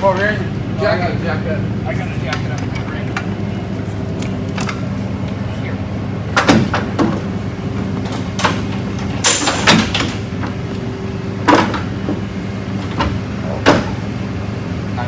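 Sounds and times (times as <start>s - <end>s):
engine-like hum: 0.0s - 15.0s
metal clanks and knocks: 6.3s - 10.8s, 11.4s - 14.2s.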